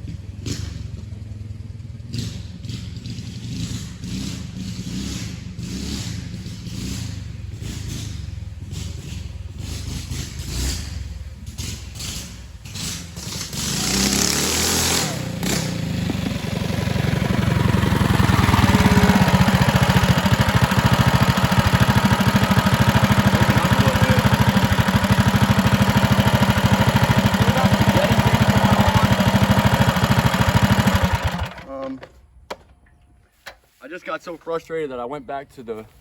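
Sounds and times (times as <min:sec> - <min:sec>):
small single-cylinder engine running: 0:12.9 - 0:31.8.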